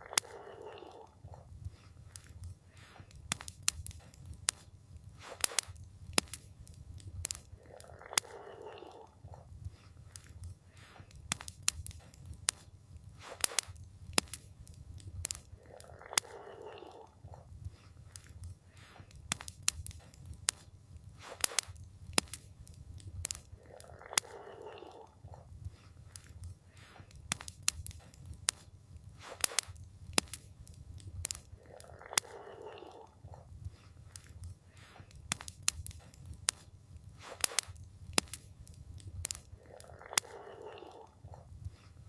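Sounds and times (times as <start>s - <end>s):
campfire crackling and popping: 0.0s - 42.0s.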